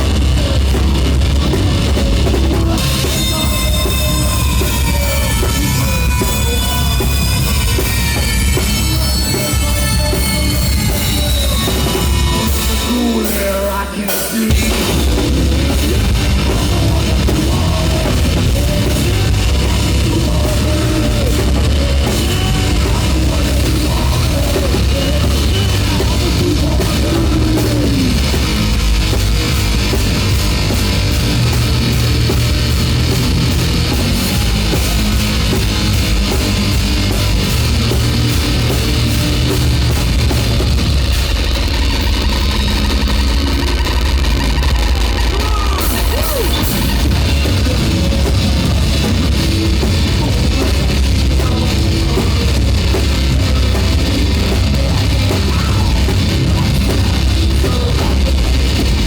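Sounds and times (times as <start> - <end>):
person singing: 0.0 - 28.7, 45.0 - 59.0
heavy metal band playing: 0.0 - 59.0.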